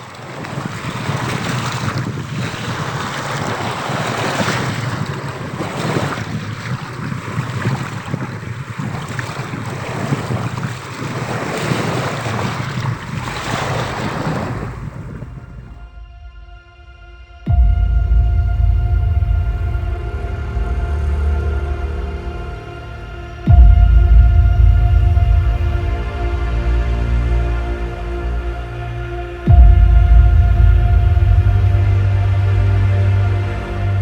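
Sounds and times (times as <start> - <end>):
loud rushing noise: 14.8 - 34.0.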